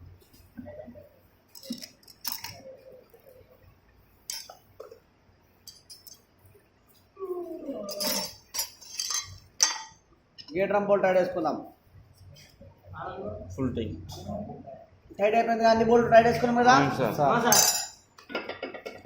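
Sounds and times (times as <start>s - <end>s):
metal parts clinking: 1.5s - 2.6s, 5.7s - 6.2s, 7.9s - 10.5s.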